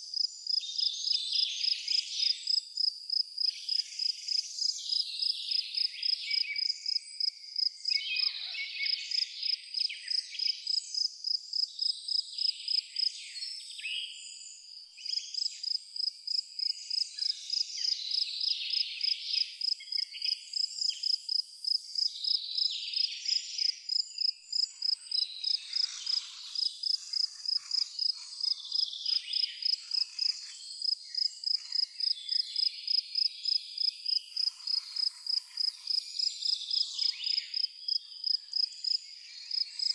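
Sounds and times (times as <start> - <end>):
cricket chirping: 0.1 - 8.3, 14.2 - 39.9
birds chirping and twittering: 21.9 - 39.9.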